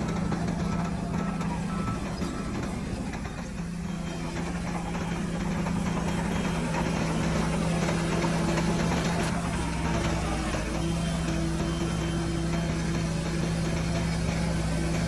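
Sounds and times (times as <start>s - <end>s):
heavy diesel engine droning: 0.0s - 15.0s.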